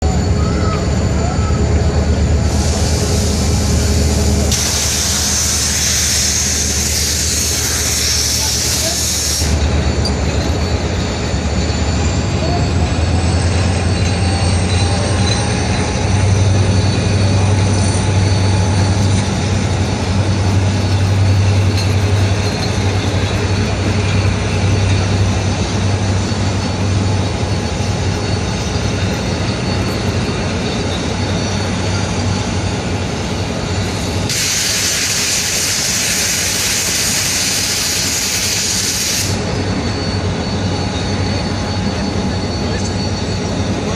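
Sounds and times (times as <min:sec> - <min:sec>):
locomotive engine drone: 0:00.0 - 0:43.9
loud hissing rush: 0:00.2 - 0:10.0, 0:17.0 - 0:39.8.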